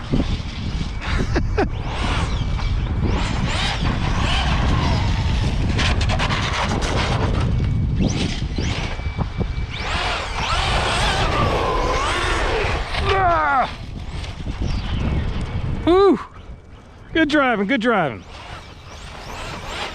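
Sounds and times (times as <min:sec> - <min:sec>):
electric motors whining: 0:00.0 - 0:19.9
steady low rumble: 0:00.0 - 0:19.9.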